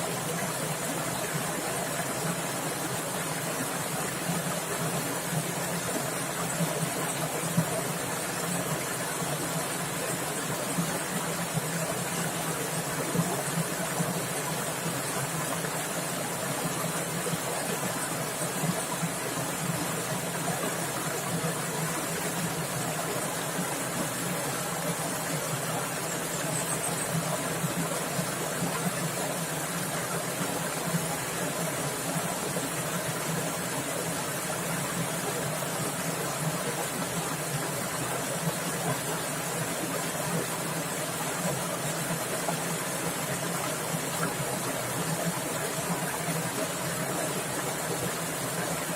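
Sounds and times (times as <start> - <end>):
stream water splashing and rushing: 0.0 - 48.9.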